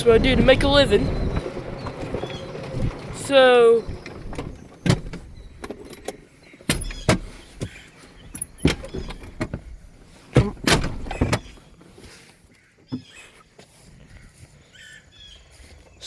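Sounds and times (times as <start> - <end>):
irregular knocks and clunks: 0.0 - 12.0.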